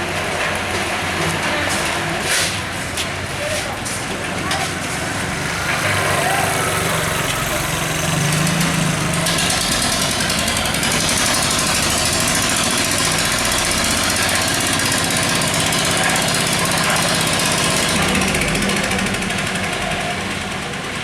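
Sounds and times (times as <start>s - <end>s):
small engine running fast: 4.7s - 21.0s.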